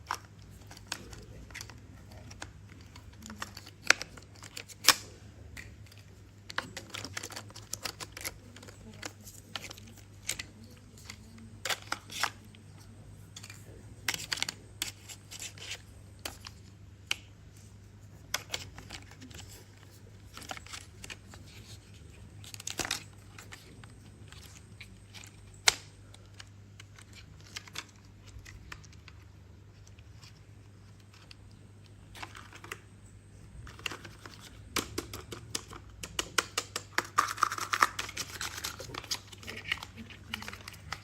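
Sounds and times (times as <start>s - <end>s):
plastic toy pieces clicking: 33.8s - 41.0s.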